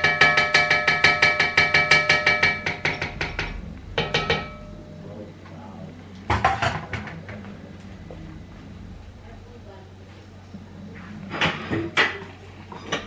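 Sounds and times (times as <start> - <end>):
metal utensil knocking on pot: 0.0 - 4.8, 6.3 - 7.4.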